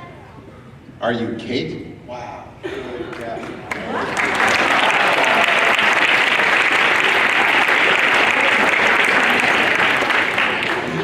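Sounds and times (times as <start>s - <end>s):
children applauding: 3.6s - 11.0s.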